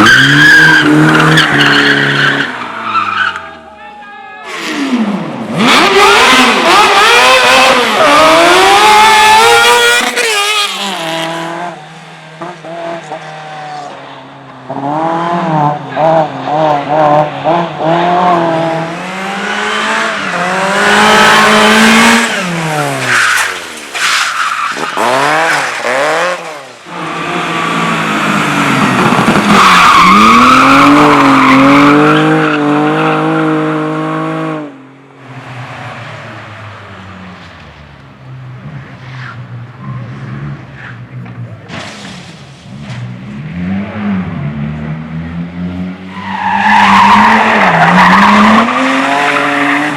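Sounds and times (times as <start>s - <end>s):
car engine revving hard: 4.5s - 11.8s, 14.7s - 23.4s, 24.7s - 34.8s, 42.2s - 49.9s.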